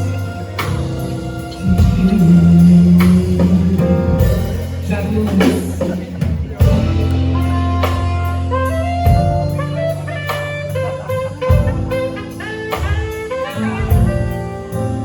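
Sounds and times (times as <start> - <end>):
guitar: 0.0 - 15.0
held bass notes: 0.0 - 15.0
drum hits: 11.5 - 14.9.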